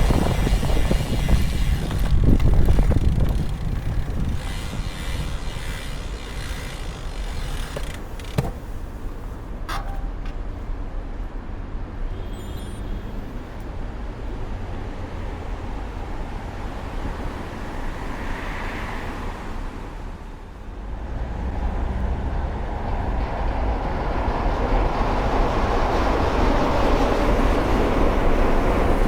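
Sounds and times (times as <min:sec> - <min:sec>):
tyres hissing on wet road: 0:16.8 - 0:20.2.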